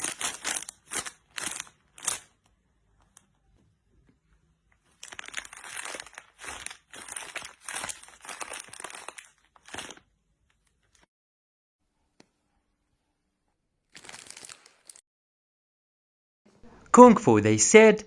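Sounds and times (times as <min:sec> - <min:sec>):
plastic bag crinkling: 0:00.0 - 0:02.4, 0:04.9 - 0:11.1, 0:13.9 - 0:15.0.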